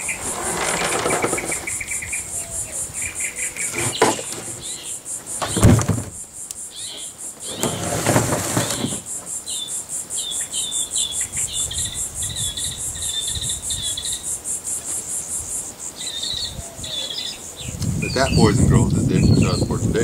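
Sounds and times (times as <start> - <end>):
rustling: 0.0 - 6.2, 6.9 - 9.4
bird chirping: 0.0 - 7.9, 8.6 - 20.0
insects trilling: 0.0 - 20.0.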